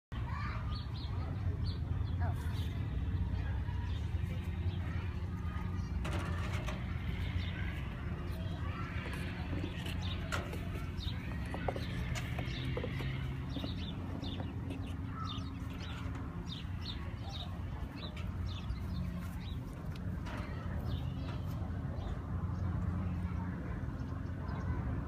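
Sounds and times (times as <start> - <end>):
small birds chirping: 0.2 - 25.0
steady low hum: 1.1 - 25.0.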